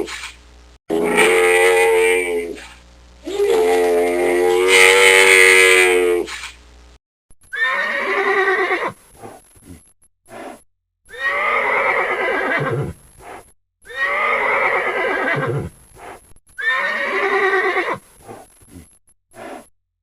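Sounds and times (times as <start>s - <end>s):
horse whinnying: 3.3s - 6.4s, 7.6s - 9.0s, 11.1s - 13.0s, 13.9s - 15.7s, 16.6s - 18.0s.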